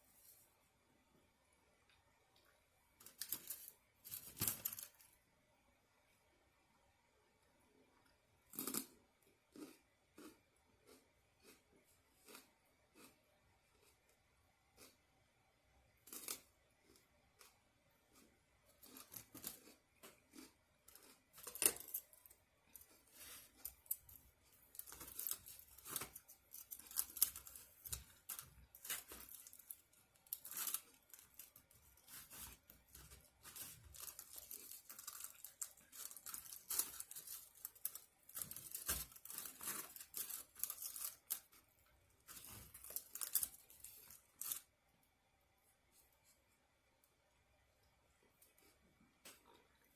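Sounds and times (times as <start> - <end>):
packaging tearing and crinkling: 24.7 - 41.5, 42.2 - 44.6.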